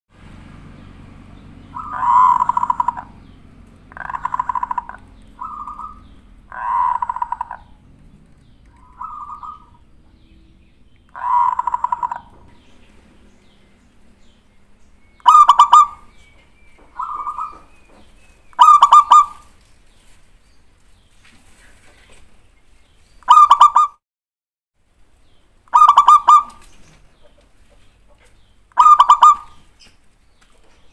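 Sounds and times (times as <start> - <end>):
dove cooing: 0.7 - 19.6, 23.3 - 24.0, 25.7 - 27.4, 28.1 - 29.7.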